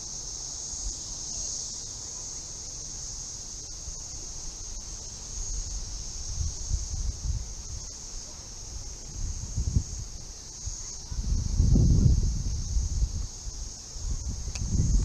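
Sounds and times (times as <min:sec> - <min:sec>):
insects chirping chorus: 0:00.0 - 0:15.0
wind on microphone: 0:05.5 - 0:08.0, 0:08.7 - 0:15.0.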